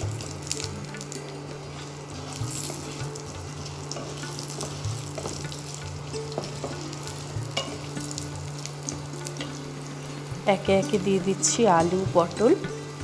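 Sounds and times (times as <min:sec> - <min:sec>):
potatoes sizzling in oil: 0:00.0 - 0:13.0.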